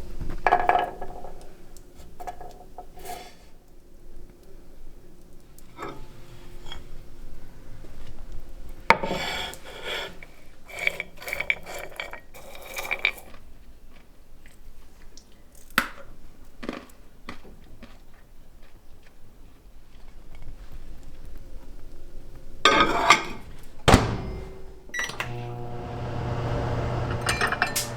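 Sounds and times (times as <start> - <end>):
rattling with ringing tone: 23.9 - 27.9.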